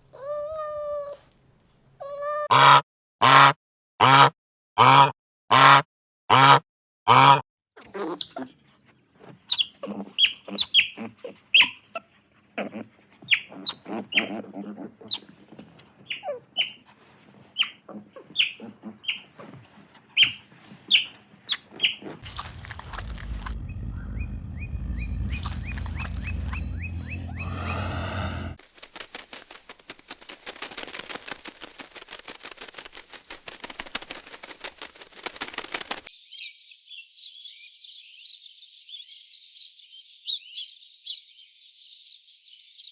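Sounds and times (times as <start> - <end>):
birds chirping: 22.2 - 28.6
steady rumbling noise: 22.2 - 28.6
loud low bird calls: 22.3 - 28.6.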